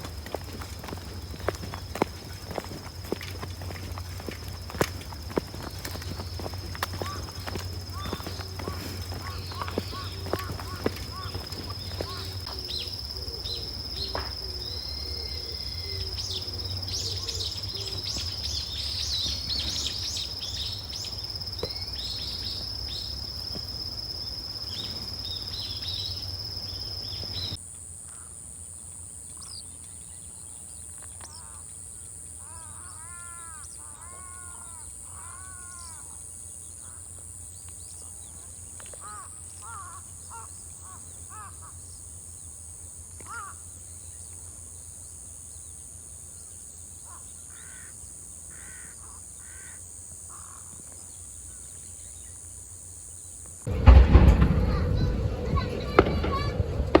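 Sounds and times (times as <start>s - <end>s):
small birds chirping: 0.0s - 27.6s
bird harsh arching calls: 5.6s - 23.0s.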